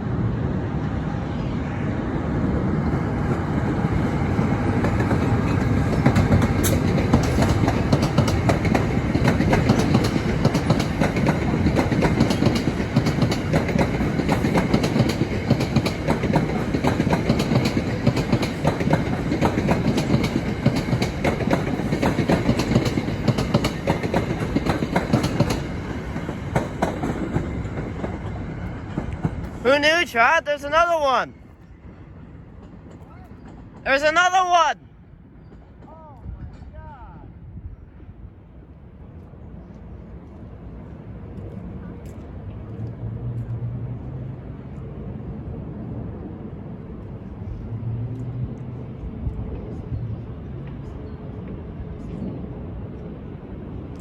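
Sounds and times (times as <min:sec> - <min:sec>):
train passing at speed: 0:00.0 - 0:54.0
wheels clacking on rail joints: 0:04.7 - 0:29.6.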